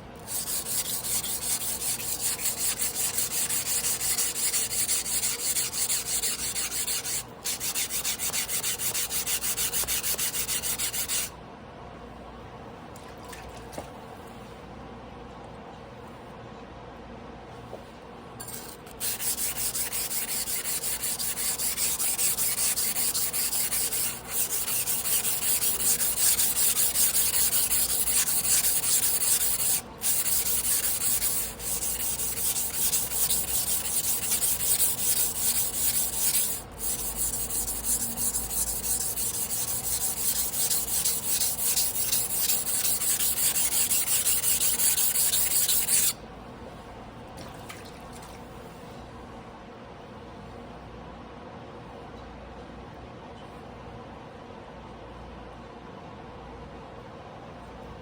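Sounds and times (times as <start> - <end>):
knife rubbing on whetstone: 0.3 - 11.3, 18.4 - 46.2.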